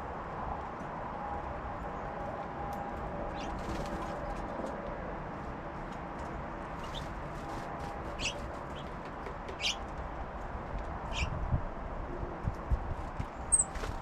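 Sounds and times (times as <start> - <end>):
songbirds chip calls: 8.2 - 9.9, 11.0 - 11.4, 13.3 - 13.7.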